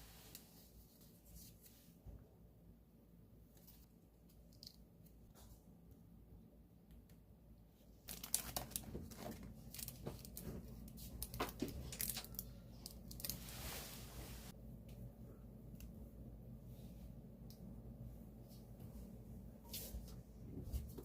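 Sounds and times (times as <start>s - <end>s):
packaging crinkled and torn open: 8.1s - 10.4s, 11.2s - 13.4s.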